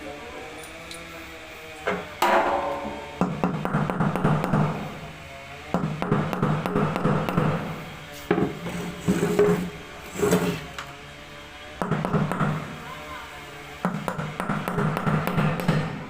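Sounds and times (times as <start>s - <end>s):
hammer tapping on metal: 2.2s - 4.8s, 5.8s - 7.6s, 13.8s - 15.9s.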